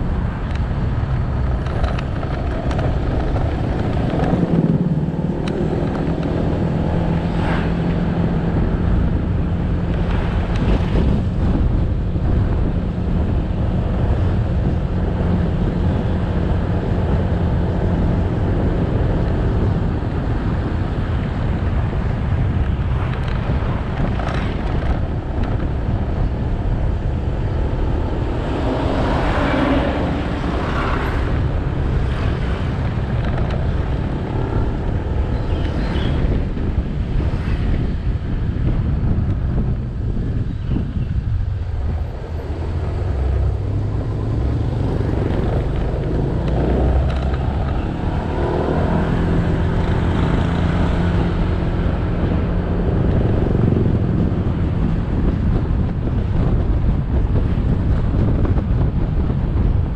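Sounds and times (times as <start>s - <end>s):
road noise: 0.0s - 59.9s
wind on microphone: 0.0s - 59.9s.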